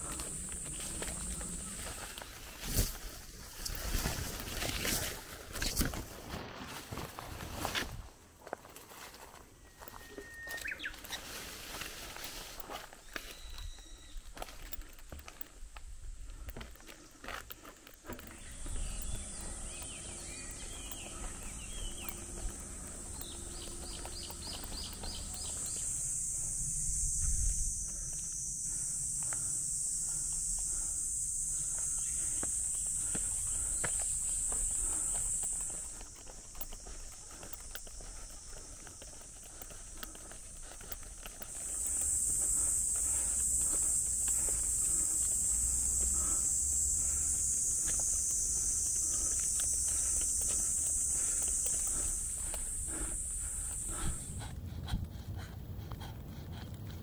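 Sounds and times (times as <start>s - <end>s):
birds chirping: 0.0s - 4.7s, 9.7s - 11.3s, 16.4s - 27.4s, 28.7s - 54.5s
high-pitched insect drone: 0.0s - 6.0s, 9.6s - 57.0s
footsteps: 0.0s - 13.7s, 14.3s - 28.3s, 31.6s - 57.0s
cicadas buzzing: 0.0s - 57.0s.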